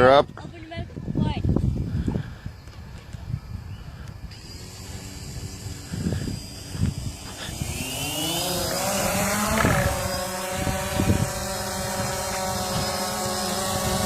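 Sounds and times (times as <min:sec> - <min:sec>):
drone motors whining: 0:02.6 - 0:14.0.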